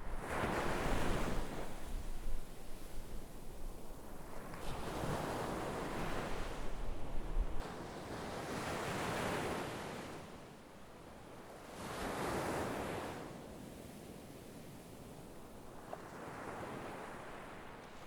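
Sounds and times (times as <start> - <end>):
wind on microphone: 0.0 - 7.6
sea waves breaking on shore: 4.0 - 6.8, 7.6 - 10.5, 15.4 - 18.0.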